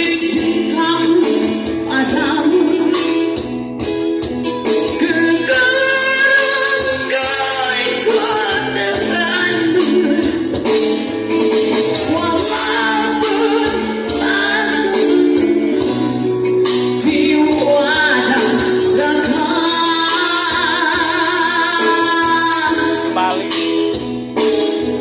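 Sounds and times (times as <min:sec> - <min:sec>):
band music: 0:00.0 - 0:25.0
man singing high with vibrato: 0:05.0 - 0:10.6, 0:12.1 - 0:23.7.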